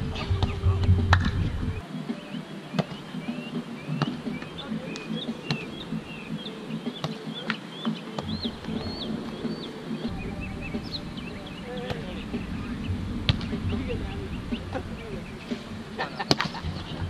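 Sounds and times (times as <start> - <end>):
birds chirping: 0.0 - 17.0
volleyball slaps: 0.2 - 1.5.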